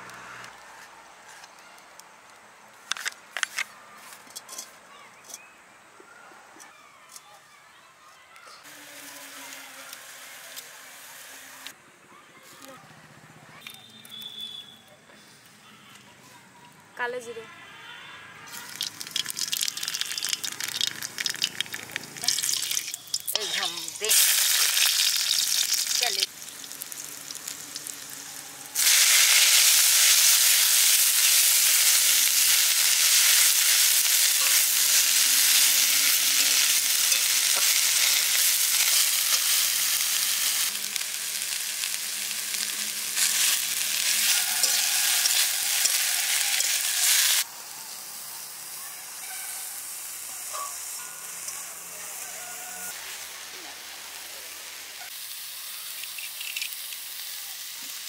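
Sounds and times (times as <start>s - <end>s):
leaves sizzling in hot oil: 8.6s - 11.8s, 18.5s - 58.0s
metal spatula stirring in wok: 42.6s - 47.4s.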